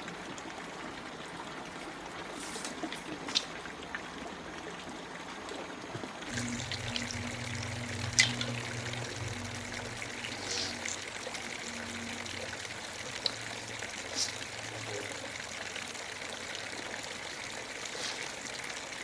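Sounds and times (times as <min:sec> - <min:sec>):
water trickling: 0:00.0 - 0:19.0.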